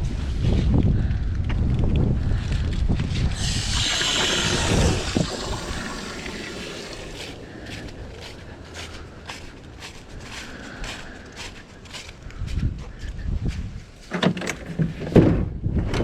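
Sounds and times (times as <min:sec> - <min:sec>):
wind buffeting microphone: 0:00.0 - 0:14.1, 0:14.8 - 0:16.0
hissing rush: 0:03.3 - 0:08.2.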